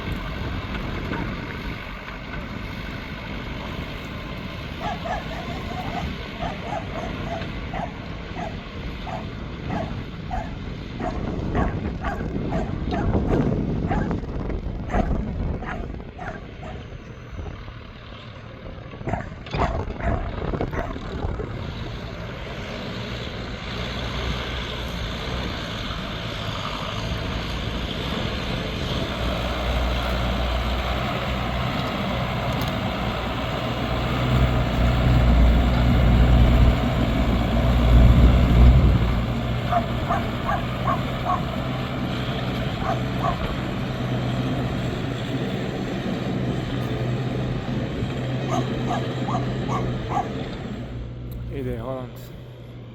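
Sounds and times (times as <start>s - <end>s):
tractor engine under load: 0.0s - 52.9s
dog barking in yelps: 4.8s - 14.1s, 14.9s - 16.9s, 19.1s - 21.0s, 39.7s - 41.5s, 42.8s - 43.5s, 48.4s - 50.4s.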